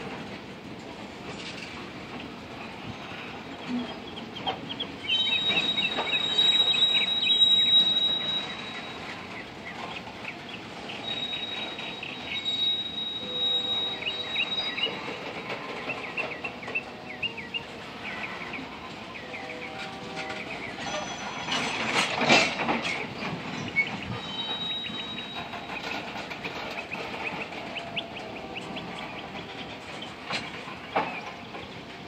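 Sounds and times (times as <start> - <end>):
freight cars rolling: 0.0 - 32.0
high wheel squeal: 5.0 - 10.0, 10.8 - 31.3.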